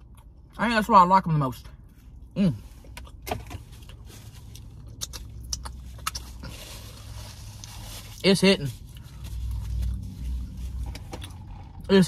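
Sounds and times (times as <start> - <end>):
chewing with mouth clicks: 0.0 - 0.6, 2.8 - 6.7, 8.8 - 11.9
car cabin hum: 2.8 - 12.0.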